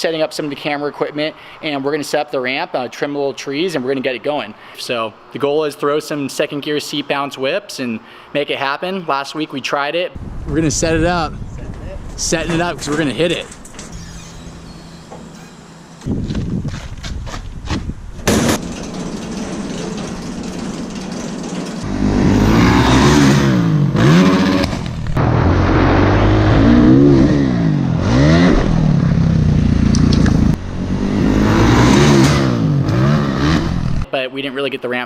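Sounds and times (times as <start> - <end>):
motocross bike engine revving: 18.3 - 34.0.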